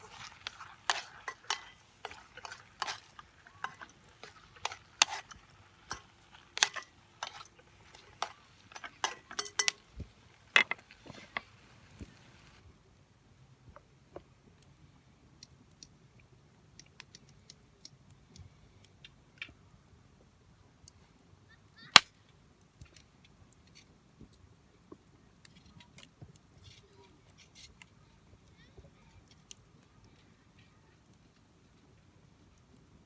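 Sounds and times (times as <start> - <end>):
wood fire crackling: 0.0 - 12.6.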